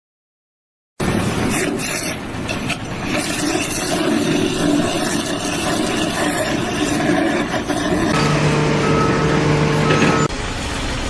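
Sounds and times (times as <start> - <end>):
engine running: 8.1 - 10.3.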